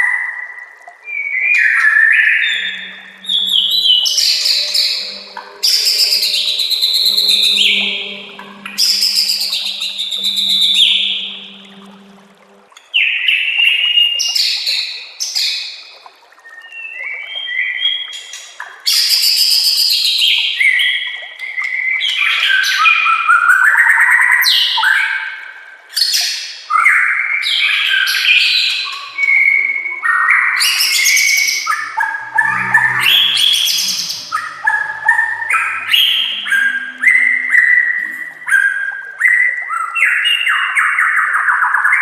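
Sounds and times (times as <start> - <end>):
songbird singing whistles and trills: 16.4 - 25.0.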